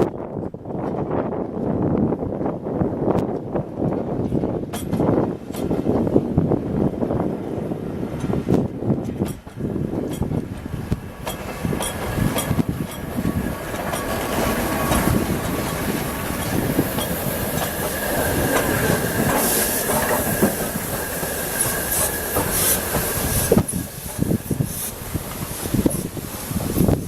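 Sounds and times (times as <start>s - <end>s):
wheels clicking over rail joints: 3.2s - 6.0s, 8.1s - 27.0s
train wheels squealing: 18.8s - 27.0s.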